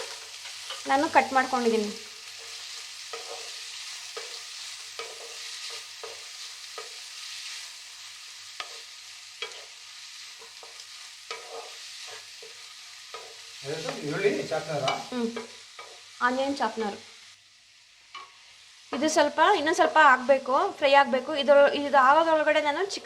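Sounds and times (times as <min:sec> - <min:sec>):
spatula scraping pan: 0:00.0 - 0:16.1
onions sizzling in hot oil: 0:00.0 - 0:23.0.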